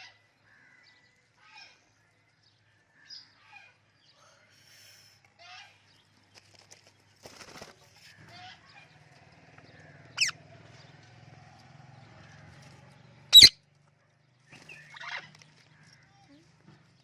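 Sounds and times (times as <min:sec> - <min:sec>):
parrot chattering calls: 0:10.2 - 0:10.4.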